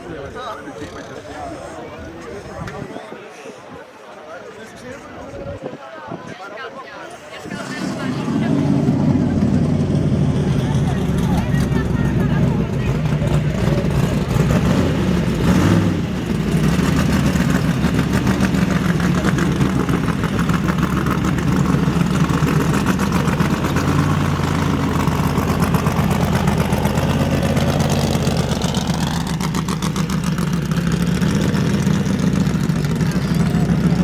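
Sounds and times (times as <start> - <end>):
buggy engine idling: 7.4 - 34.0.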